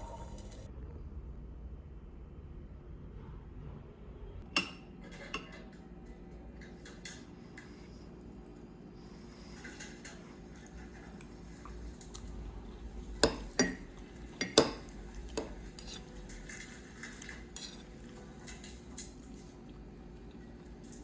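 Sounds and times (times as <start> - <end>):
dishes and cutlery clinking: 4.4 - 5.8, 13.2 - 19.2.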